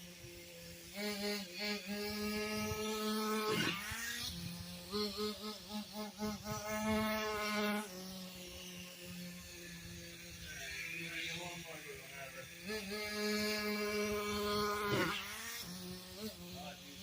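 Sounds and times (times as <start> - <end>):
small nitro engine buzzing and revving: 0.0 - 17.0.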